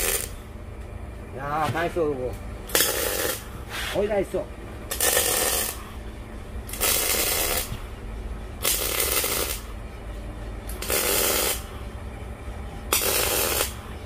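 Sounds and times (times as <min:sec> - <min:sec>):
electric welder crackling: 0:00.0 - 0:00.4, 0:02.6 - 0:03.5, 0:04.9 - 0:05.9, 0:06.6 - 0:07.8, 0:08.6 - 0:09.7, 0:10.7 - 0:11.7, 0:12.9 - 0:13.8.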